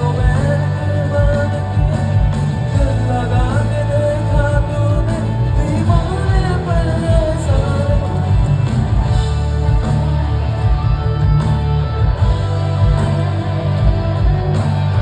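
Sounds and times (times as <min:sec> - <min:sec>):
person singing: 0:00.0 - 0:08.8
pulsing bass beat: 0:00.0 - 0:15.0
rock band music: 0:00.0 - 0:15.0.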